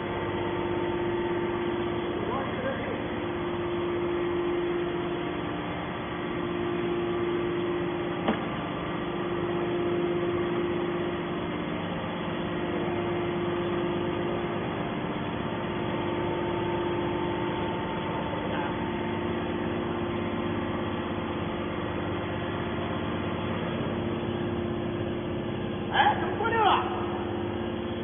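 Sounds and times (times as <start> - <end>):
machine mechanical hum: 0.0 - 28.0.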